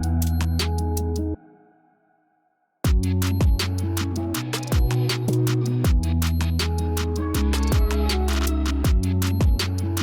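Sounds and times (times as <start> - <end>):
electronic background music: 2.9 - 10.0.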